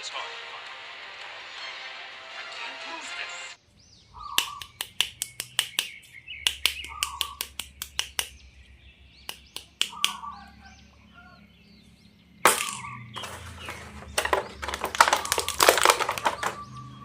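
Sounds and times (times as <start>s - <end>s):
sharp plastic clicks: 4.3s - 8.5s, 9.2s - 10.2s, 12.5s - 16.8s
plastic packaging crinkling: 12.5s - 16.7s.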